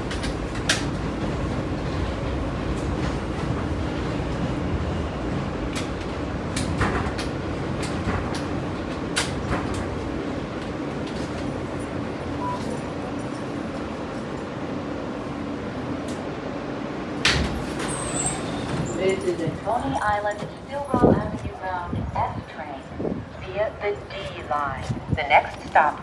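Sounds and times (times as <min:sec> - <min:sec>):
wheels clicking on rails: 0:00.0 - 0:14.6, 0:17.2 - 0:22.9
subway train rumble: 0:00.0 - 0:26.0.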